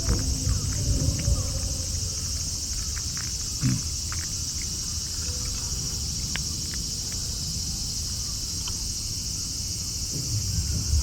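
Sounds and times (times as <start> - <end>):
low rumble: 0.0 - 4.6
insects buzzing: 0.0 - 11.0.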